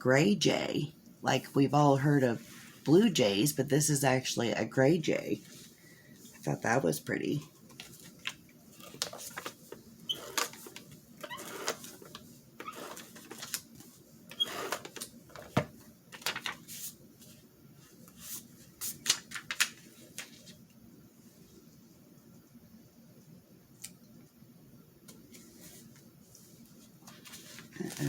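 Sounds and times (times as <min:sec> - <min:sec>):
paper rustling: 0:07.6 - 0:14.0, 0:14.7 - 0:20.6, 0:25.3 - 0:28.0.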